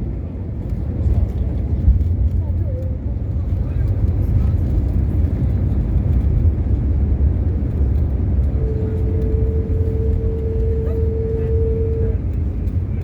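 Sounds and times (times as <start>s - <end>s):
vehicle engine rumble: 0.0s - 13.0s
steady hum tone: 8.5s - 12.6s.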